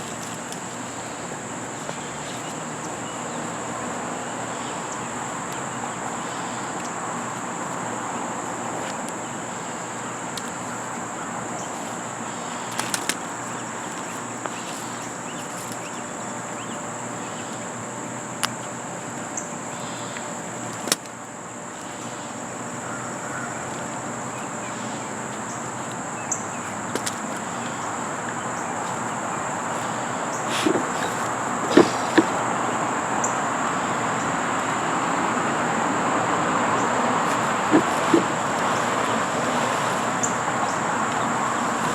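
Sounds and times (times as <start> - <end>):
insects chirping chorus: 0.0 - 41.9
constant rushing background: 21.8 - 41.9.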